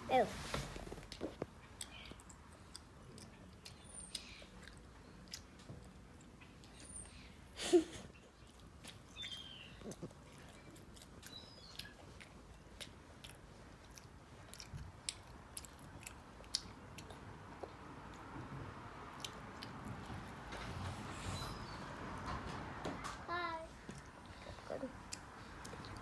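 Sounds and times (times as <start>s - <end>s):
person chewing food: 0.9s - 7.0s, 8.2s - 20.4s, 23.8s - 26.0s.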